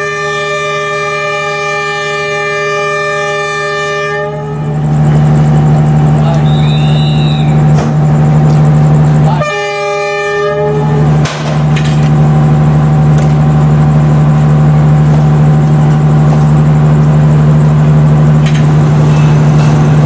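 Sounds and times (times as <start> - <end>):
locomotive horn blast: 0.0 - 5.0, 9.3 - 11.3
diesel engine low drone: 0.0 - 20.0.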